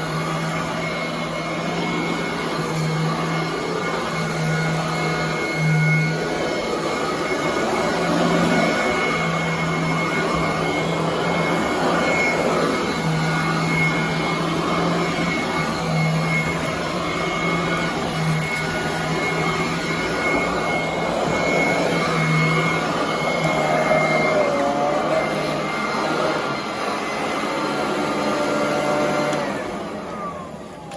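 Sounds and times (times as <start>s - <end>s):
vacuum cleaner on carpet: 0.0s - 30.9s.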